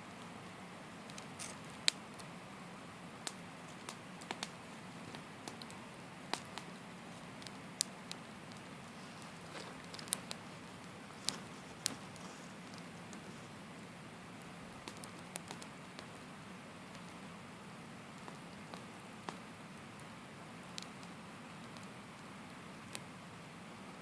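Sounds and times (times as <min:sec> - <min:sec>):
campfire crackling and popping: 0:00.1 - 0:24.0
hiss of flames: 0:00.2 - 0:24.0.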